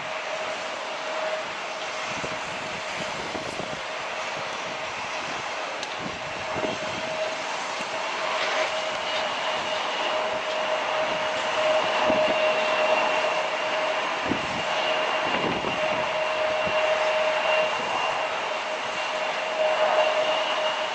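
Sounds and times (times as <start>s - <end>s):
jet engines whining: 0.0s - 20.9s
wind buffeting microphone: 0.0s - 20.9s.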